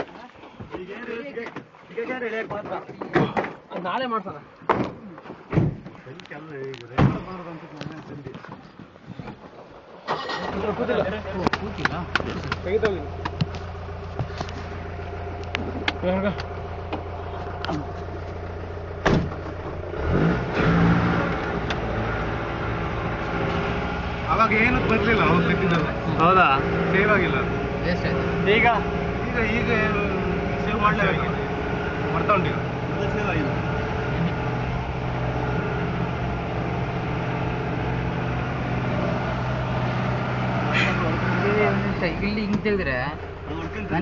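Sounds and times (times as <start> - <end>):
road noise: 0.0 - 44.0
car engine revving: 10.1 - 44.0.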